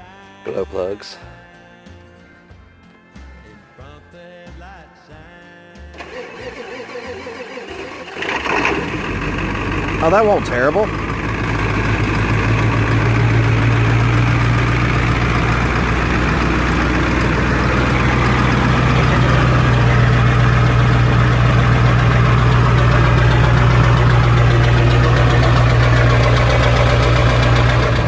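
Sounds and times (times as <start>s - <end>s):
diesel engine idling: 6.0s - 28.0s.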